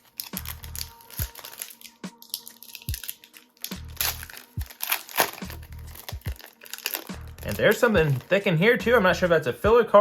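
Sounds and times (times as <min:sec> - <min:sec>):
foil wrapper crinkling and tearing: 0:00.0 - 0:08.4
music with bass beat: 0:05.5 - 0:06.4, 0:07.1 - 0:08.2, 0:08.8 - 0:09.8.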